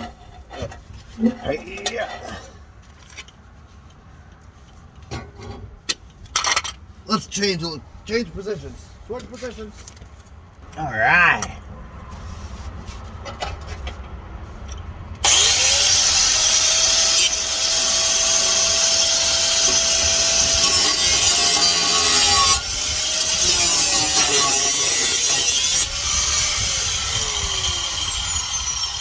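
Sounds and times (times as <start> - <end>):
angle grinder cutting metal pipe: 15.2 - 29.0.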